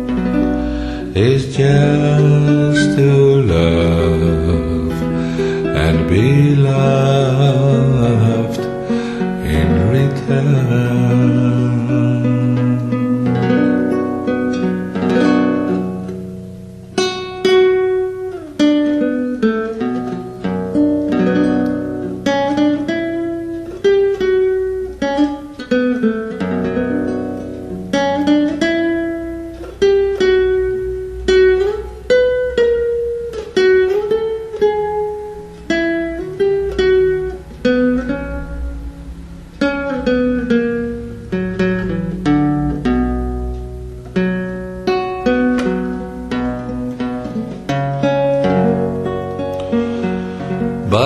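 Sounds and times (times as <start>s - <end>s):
solo guitar melody: 0.0s - 51.0s.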